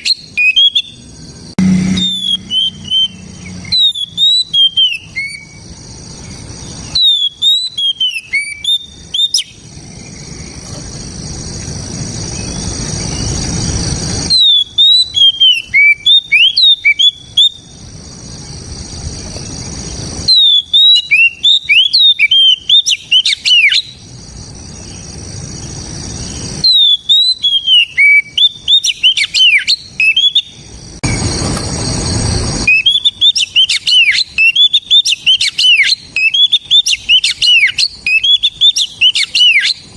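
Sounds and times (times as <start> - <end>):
bird singing sharp whistled notes: 0.0 - 1.0, 1.6 - 10.6, 14.2 - 17.8, 19.7 - 24.0, 26.1 - 31.4, 32.6 - 39.9.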